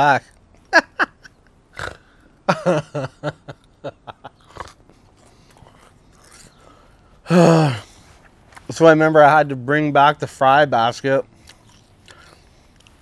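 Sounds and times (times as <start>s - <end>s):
man laughing: 0.6s - 1.4s, 2.4s - 4.6s
mouth clicks chewing: 4.4s - 6.8s, 11.3s - 13.0s.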